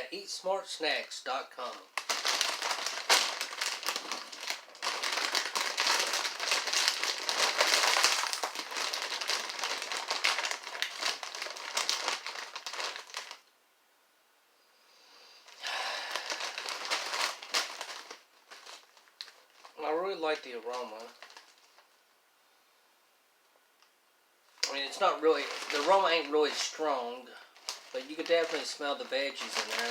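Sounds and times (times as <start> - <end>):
snack bag crinkling: 1.6 - 13.4, 15.5 - 21.9, 24.6 - 29.9.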